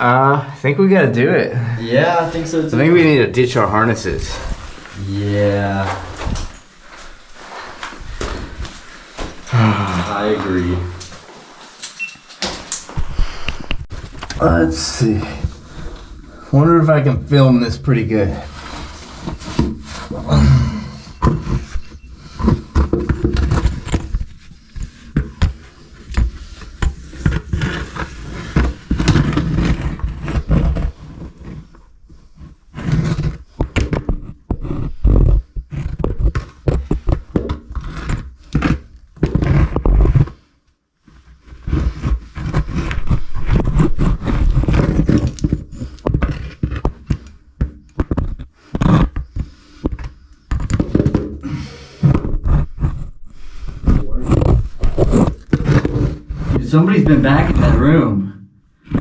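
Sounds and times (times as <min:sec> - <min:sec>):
clothing dragging against rock: 0:05.8 - 0:09.5
scraping and rubbing against rock: 0:17.5 - 0:57.9.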